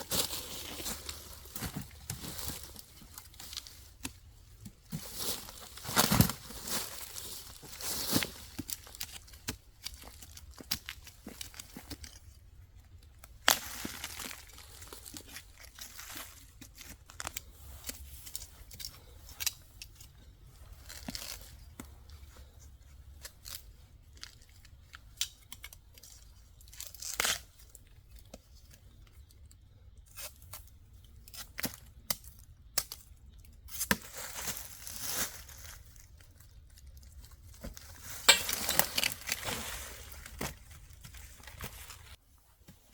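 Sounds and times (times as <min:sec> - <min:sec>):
crinkling and tearing: 0:33.6 - 0:42.2.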